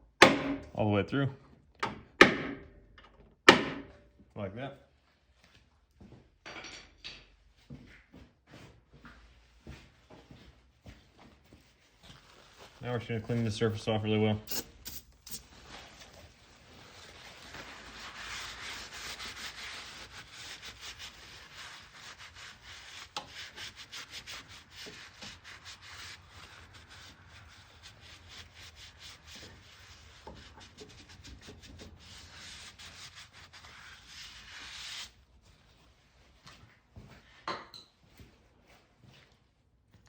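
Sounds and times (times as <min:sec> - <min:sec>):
scrubbing bare metal by hand: 0:14.5 - 0:35.2.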